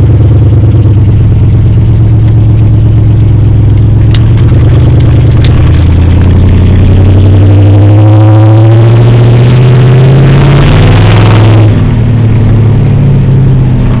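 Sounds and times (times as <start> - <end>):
pickup truck engine accelerating: 0.0 - 14.0.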